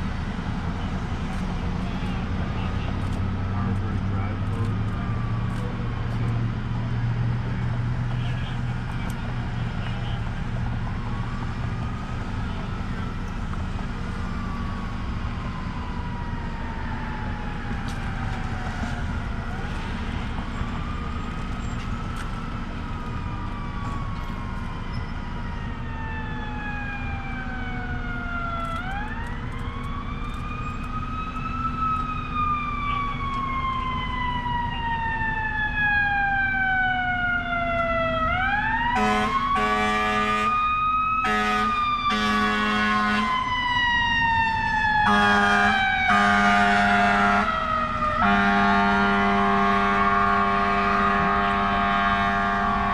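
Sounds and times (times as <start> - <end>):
emergency siren wailing: 0.0 - 52.9
low horn short blasts: 39.0 - 40.6, 41.2 - 43.3, 45.1 - 47.5, 48.2 - 52.9.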